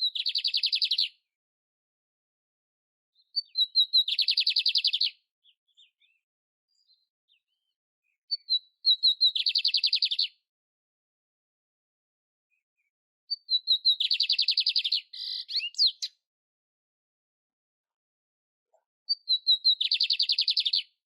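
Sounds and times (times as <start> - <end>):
canary chirping and trilling: 0.0 - 1.1, 3.2 - 6.2, 8.3 - 10.3, 13.3 - 16.2, 19.1 - 21.0.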